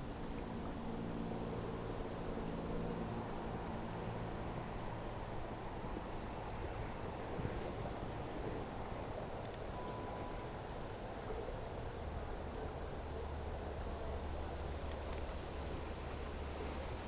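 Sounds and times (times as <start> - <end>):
insects droning: 0.0 - 17.0
faint whistle-like tone: 9.7 - 10.5.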